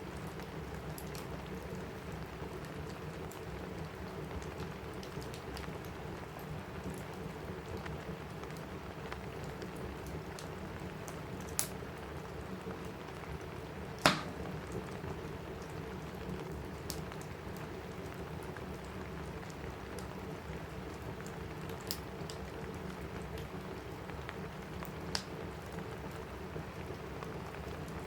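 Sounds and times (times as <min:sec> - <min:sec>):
crackling wood fire: 0:00.0 - 0:28.0
rain on a roof: 0:00.0 - 0:28.0.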